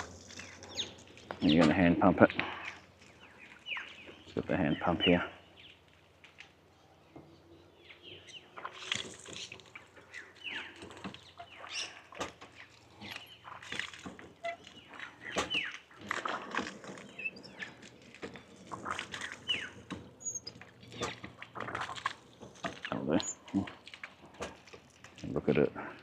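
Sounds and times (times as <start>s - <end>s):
water gushing: 0.0s - 5.3s, 8.4s - 26.0s
hand water pump squeaking: 8.5s - 25.2s.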